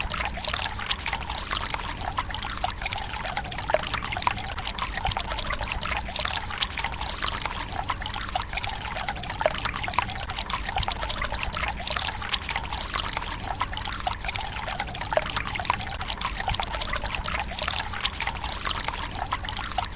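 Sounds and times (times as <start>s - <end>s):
water trickling into stone basin: 0.0s - 19.9s.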